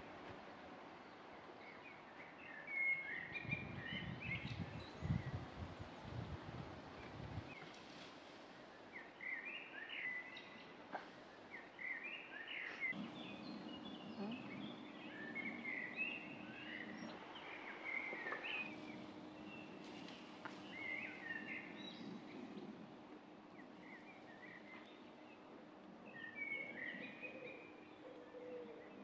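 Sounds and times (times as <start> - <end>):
songbirds chirping and warbling: 0.0 - 29.0
faint low hum: 12.8 - 29.0.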